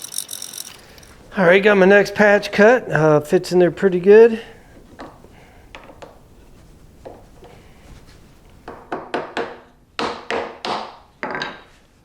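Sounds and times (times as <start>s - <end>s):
wooden pieces knocking: 0.0s - 1.2s.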